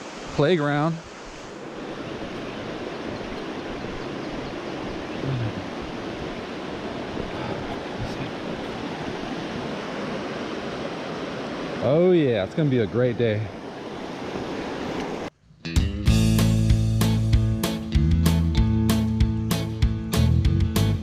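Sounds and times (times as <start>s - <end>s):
river water rushing: 0.0s - 15.3s.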